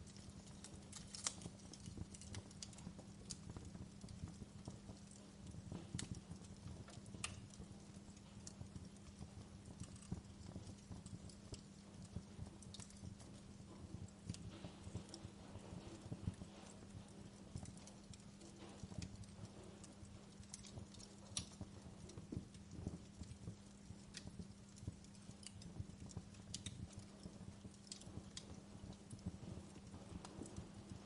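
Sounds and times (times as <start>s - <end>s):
faint low hum: 0.0s - 31.0s
wood fire crackling: 0.0s - 31.0s.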